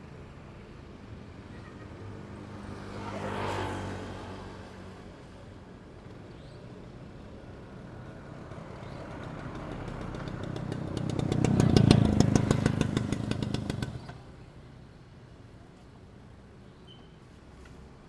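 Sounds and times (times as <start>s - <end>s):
motorcycle passing by: 1.6s - 5.6s, 6.4s - 14.4s.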